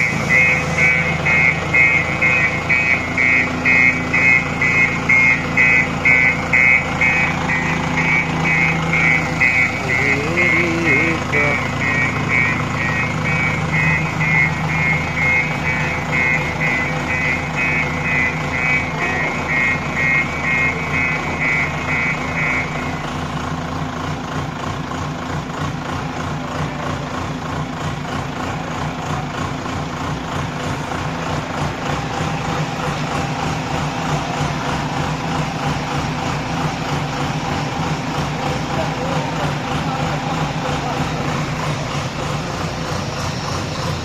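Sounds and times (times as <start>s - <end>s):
reversing alarm beeping: 0.0s - 23.1s
diesel engine running: 0.0s - 44.0s.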